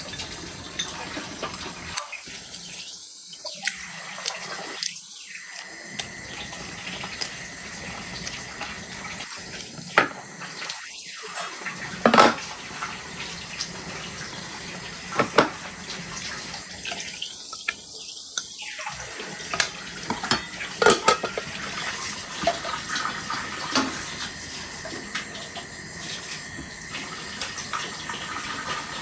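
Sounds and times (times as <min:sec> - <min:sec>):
dishes and cutlery clinking: 0:00.0 - 0:02.1, 0:19.5 - 0:21.6.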